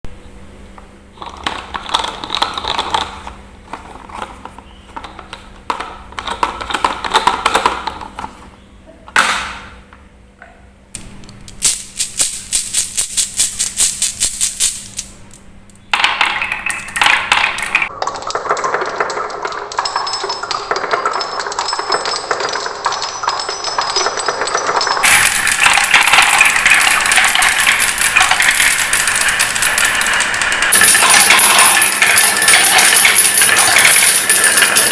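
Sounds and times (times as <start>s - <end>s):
marbles rolling on wooden tracks: 1.2s - 8.1s, 16.0s - 34.9s.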